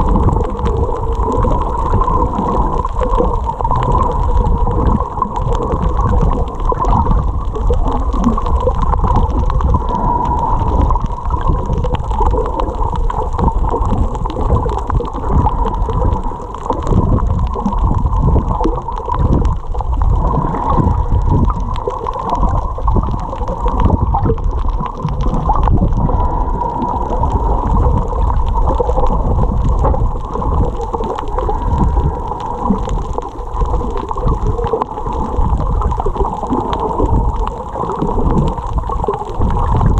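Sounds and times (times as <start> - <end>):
faint steady hum: 0.0 - 39.9
muffled underwater rumbling: 0.0 - 39.9.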